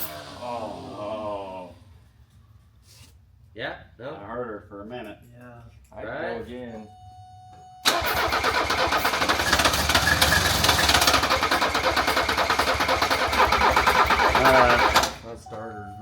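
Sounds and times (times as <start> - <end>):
starter motor cranking diesel engine: 7.8 - 15.3.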